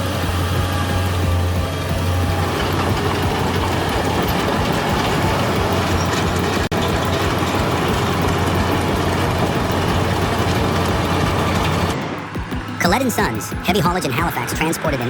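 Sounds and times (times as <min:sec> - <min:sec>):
mechanical clatter: 0:00.0 - 0:12.8
diesel engine hum: 0:00.0 - 0:15.0.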